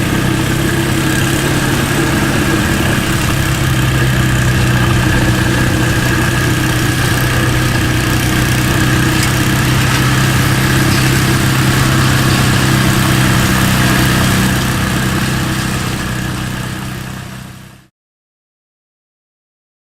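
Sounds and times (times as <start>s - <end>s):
small engine running steadily: 0.0s - 17.9s.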